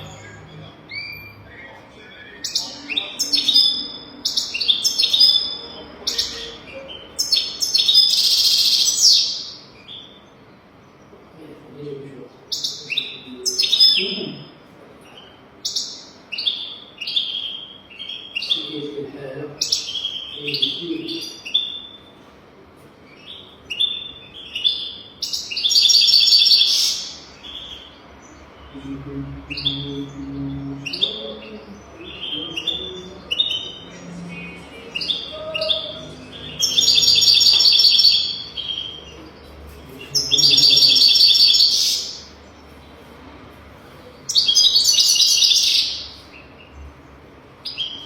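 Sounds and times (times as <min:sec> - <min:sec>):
goldfinch singing: 0:23.2 - 0:39.3, 0:40.0 - 0:42.4.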